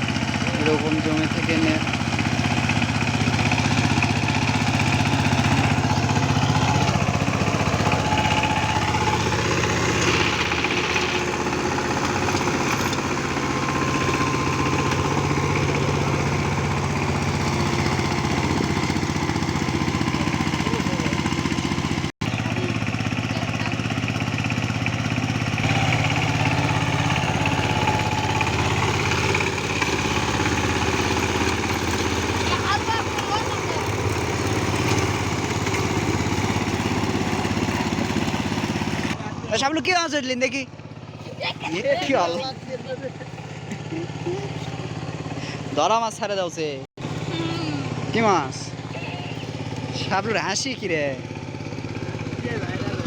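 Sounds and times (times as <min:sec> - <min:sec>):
power tiller diesel engine running: 0:00.0 - 0:53.0.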